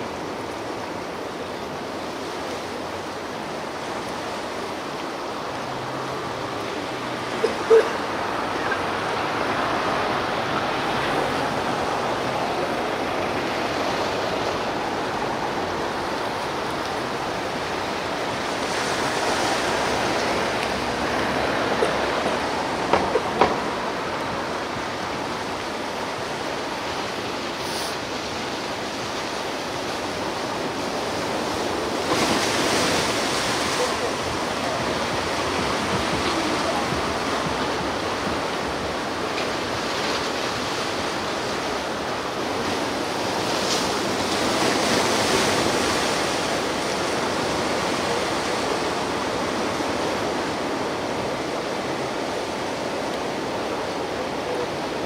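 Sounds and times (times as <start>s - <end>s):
ocean surf washing on shore: 0.0s - 55.0s.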